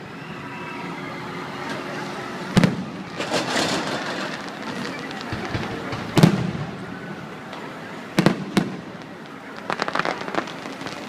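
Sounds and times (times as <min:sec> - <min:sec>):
fireworks bursting with bangs: 0:02.4 - 0:11.0
fireworks crackling pops: 0:02.5 - 0:11.0.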